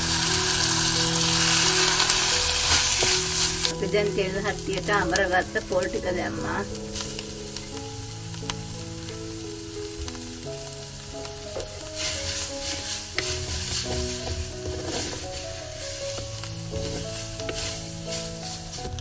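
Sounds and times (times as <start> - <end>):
coconut sizzling in hot oil: 0.0 - 19.0
wooden spoon stirring and scraping: 0.0 - 19.0.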